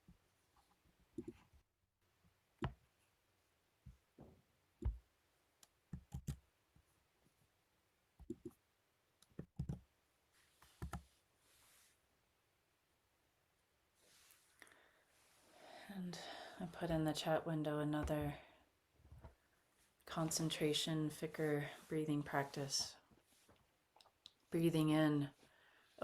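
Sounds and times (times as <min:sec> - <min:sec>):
soft breath: 0:14.0 - 0:16.7, 0:25.4 - 0:26.0
faint clicks and soft knocks: 0:19.0 - 0:20.1.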